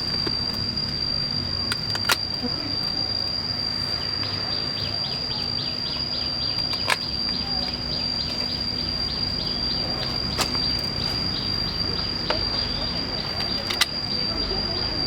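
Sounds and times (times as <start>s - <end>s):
sharp clicks: 0.0s - 2.5s, 5.8s - 8.5s, 12.2s - 14.2s
insects falling chirps: 0.0s - 15.0s
insects high-pitched drone: 0.0s - 15.0s.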